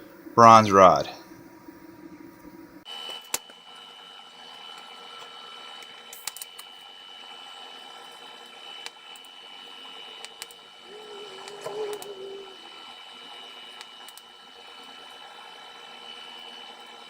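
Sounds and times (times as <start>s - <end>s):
welding arc hissing and whining: 5.0s - 14.8s.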